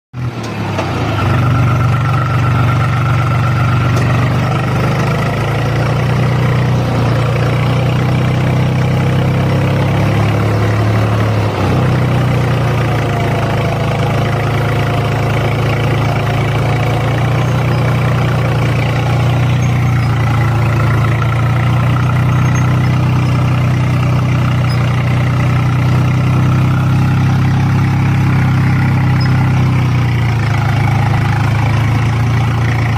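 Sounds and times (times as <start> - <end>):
tractor diesel engine running: 0.1 - 32.9.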